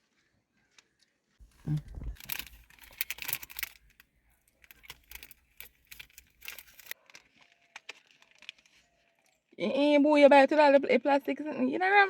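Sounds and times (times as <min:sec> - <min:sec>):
plastic wrapper crackling: 0:01.4 - 0:07.0.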